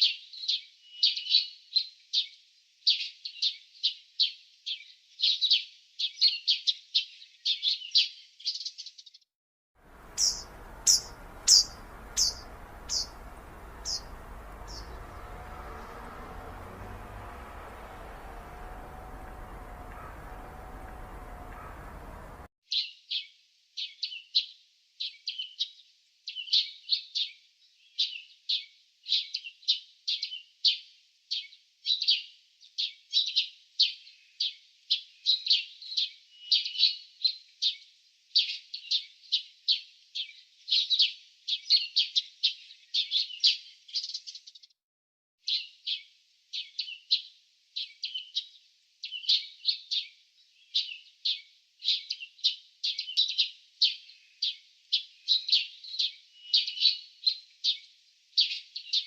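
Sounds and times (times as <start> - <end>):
songbirds chirping: 9.8 - 22.5.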